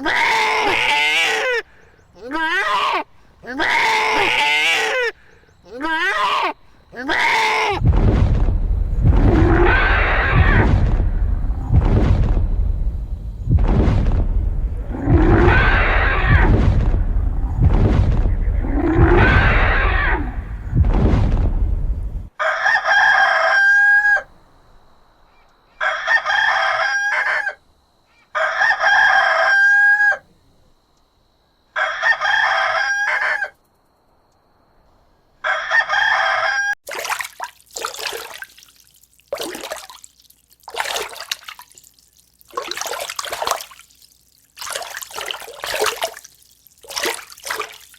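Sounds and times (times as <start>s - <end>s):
large fowl calling: 0.0s - 7.8s, 25.7s - 30.2s, 35.4s - 36.8s
deep rumbling animal calls: 2.2s - 22.3s
water splashing: 7.1s - 22.3s, 36.8s - 47.9s.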